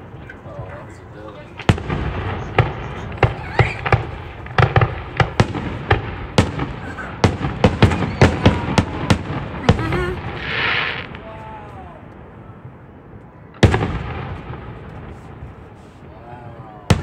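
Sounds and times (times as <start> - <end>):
fireworks bursting: 0.0 - 12.8, 13.5 - 17.0
fireworks hiss: 9.6 - 11.2.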